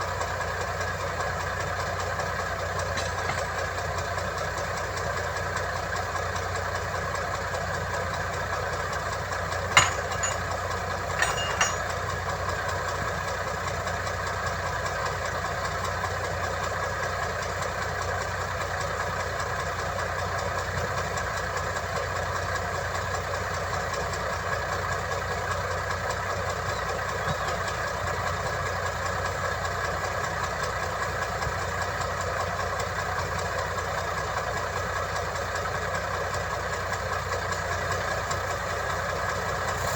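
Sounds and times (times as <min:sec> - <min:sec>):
heavy machinery diesel engine: 0:00.0 - 0:39.9
sharp metallic knock: 0:09.8 - 0:10.4.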